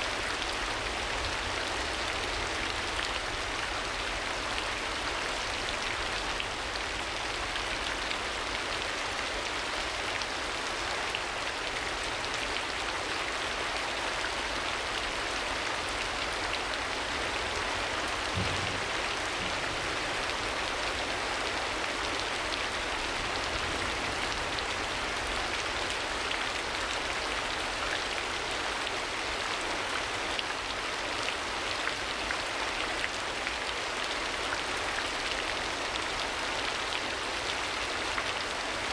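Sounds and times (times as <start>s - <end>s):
rain pattering: 0.0s - 38.9s
faint low thump: 18.3s - 19.8s.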